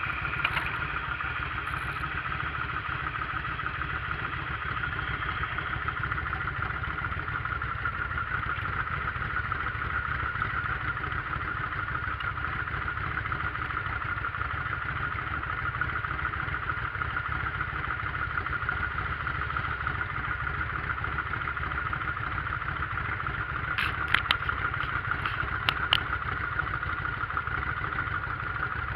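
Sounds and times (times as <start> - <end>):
motorcycle engine running: 0.0 - 28.9
sharp clicks: 23.8 - 26.2.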